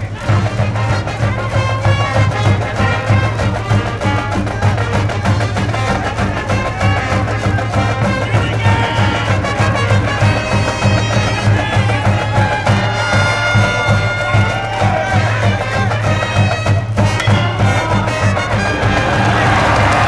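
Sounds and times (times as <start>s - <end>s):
brass band wind melody: 0.0s - 20.0s.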